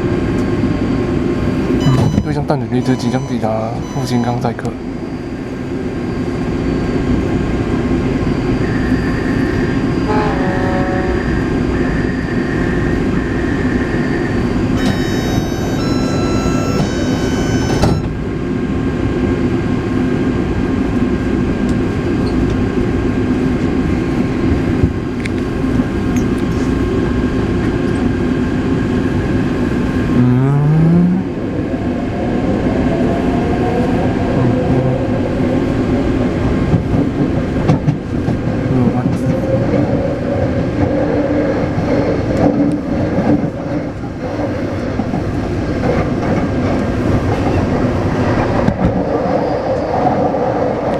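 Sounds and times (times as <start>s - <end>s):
train wheels and motors rumbling: 0.0s - 50.9s
high beeping tones: 1.8s - 4.6s, 14.8s - 18.2s
rising whine: 11.1s - 18.3s.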